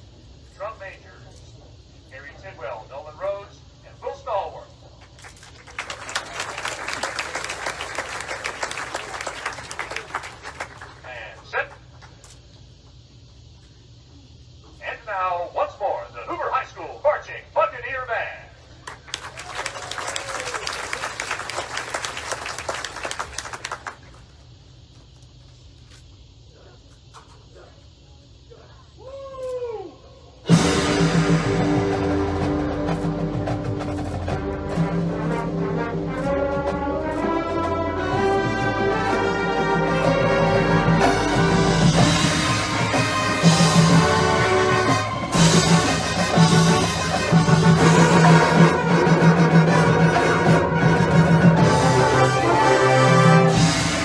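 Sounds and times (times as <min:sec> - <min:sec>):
audience applauding: 0:05.2 - 0:11.2, 0:18.8 - 0:24.3
marching band brass chords: 0:30.4 - 0:54.0.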